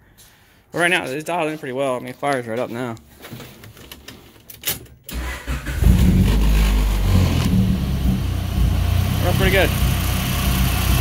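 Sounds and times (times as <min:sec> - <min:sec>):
car engine cranking and starting: 0:05.1 - 0:11.0
car engine idling: 0:05.6 - 0:11.0.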